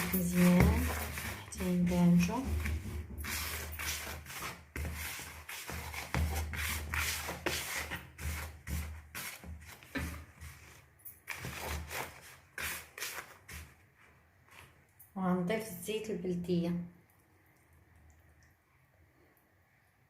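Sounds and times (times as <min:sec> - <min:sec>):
gritty rubbing in a bowl: 0:00.0 - 0:13.8.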